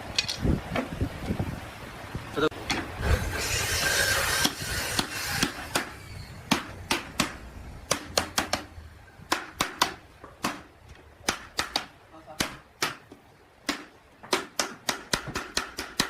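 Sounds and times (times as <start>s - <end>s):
hiss: 3.0s - 6.3s
sharp irregular knocks: 6.5s - 8.7s, 9.3s - 16.0s.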